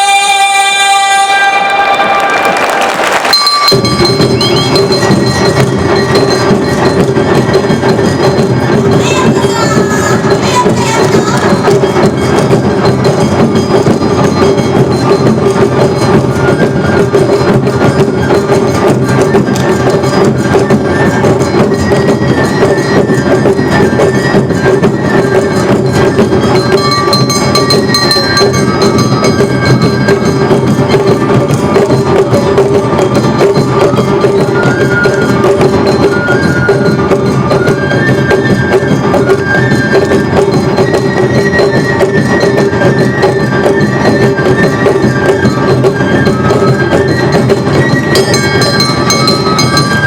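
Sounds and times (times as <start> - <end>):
drums beating: 0.0 - 50.0
flute melody: 0.0 - 50.0
hand gongs clanging: 3.3 - 9.4, 17.2 - 34.6, 47.2 - 50.0.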